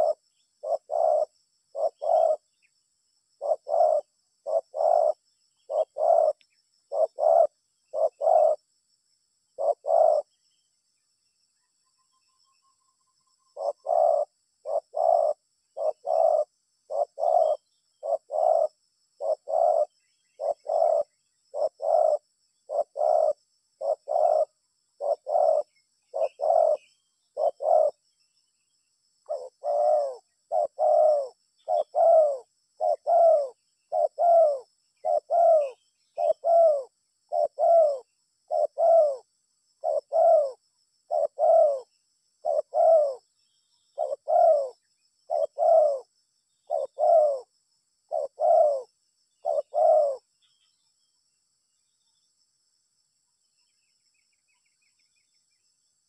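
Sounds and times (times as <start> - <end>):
dove cooing: 0.0 - 2.7, 3.3 - 8.7, 9.5 - 10.3, 13.5 - 28.0, 29.2 - 43.3, 43.9 - 47.5, 48.1 - 50.3.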